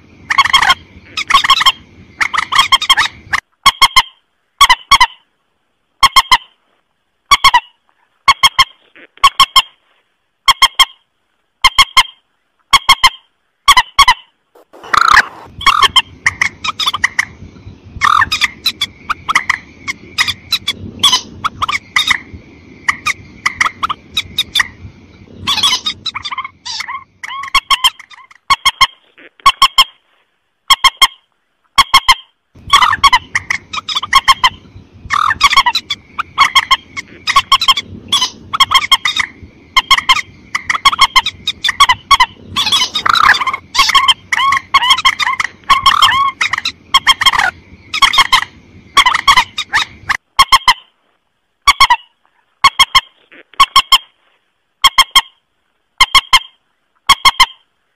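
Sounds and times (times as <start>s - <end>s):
rail bird honking calls: 0.3s - 5.2s, 11.6s - 17.4s, 18.0s - 24.8s, 25.4s - 30.0s, 31.8s - 50.9s.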